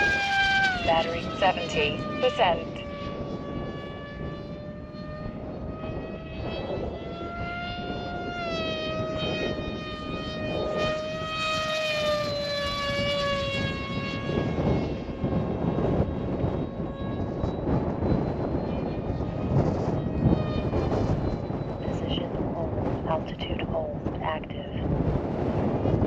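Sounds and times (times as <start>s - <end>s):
model plane motor whining: 0.0s - 21.8s
wind rumble on microphone: 0.0s - 26.0s.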